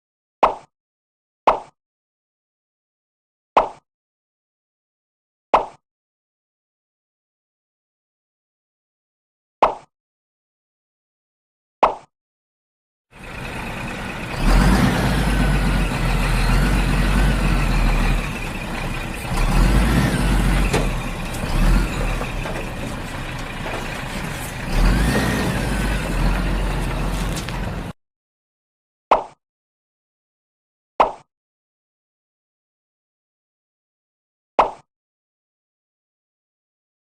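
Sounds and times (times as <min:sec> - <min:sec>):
heavy truck engine rumble: 0:13.2 - 0:28.0.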